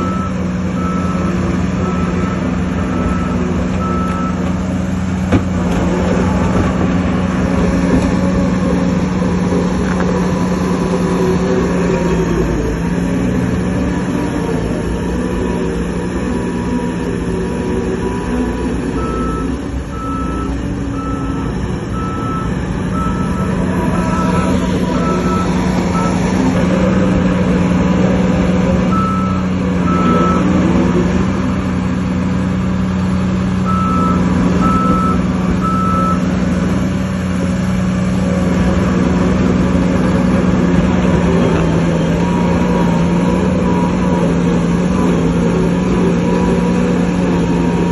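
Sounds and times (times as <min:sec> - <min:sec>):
reversing alarm beeping: 0:00.0 - 0:04.5, 0:17.9 - 0:26.6, 0:28.9 - 0:30.7, 0:33.6 - 0:36.3
heavy diesel machinery running: 0:00.0 - 0:47.9.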